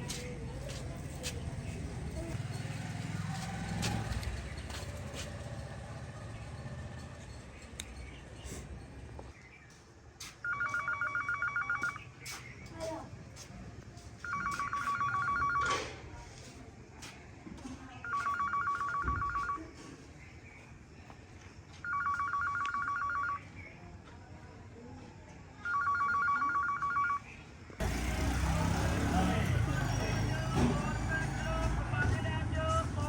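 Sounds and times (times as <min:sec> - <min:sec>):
noisy street sound: 0:00.0 - 0:33.0
telephone ringing: 0:10.4 - 0:12.0, 0:14.2 - 0:15.9, 0:18.0 - 0:19.7, 0:21.8 - 0:23.4, 0:25.6 - 0:27.3.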